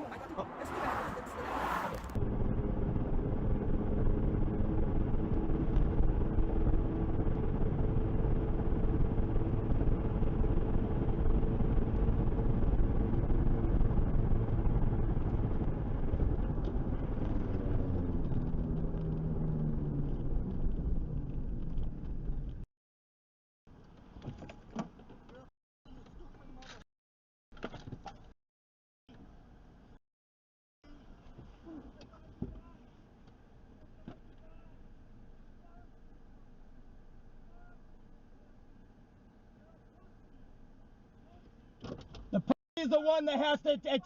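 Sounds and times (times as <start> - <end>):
car engine and road noise: 0.0 - 22.7.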